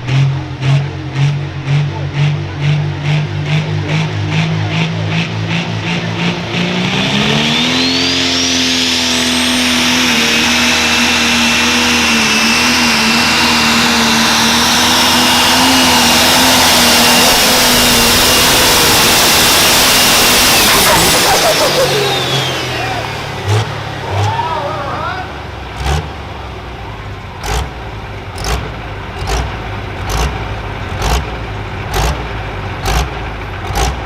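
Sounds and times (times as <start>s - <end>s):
pulling-tractor engine revving: 0.0s - 34.0s
turbo whistle whine: 7.5s - 23.3s.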